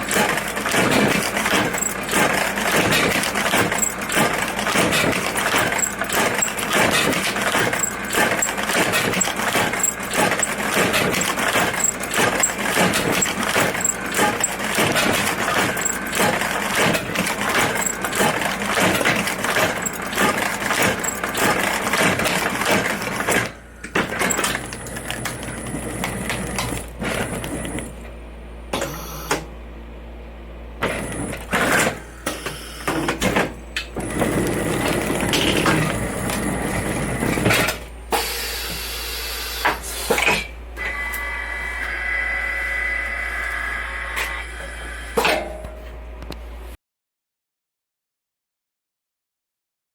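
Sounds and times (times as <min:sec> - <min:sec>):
sewing machine clatter: 0:00.0 - 0:28.1, 0:30.8 - 0:37.9
mechanism clunks and knocks: 0:00.0 - 0:29.5, 0:30.8 - 0:38.0, 0:45.2 - 0:46.4.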